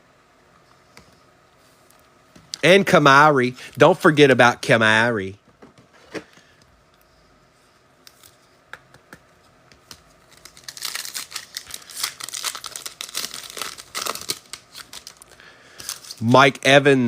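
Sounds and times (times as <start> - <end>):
foil wrapper tearing and crinkling: 10.2 - 16.2.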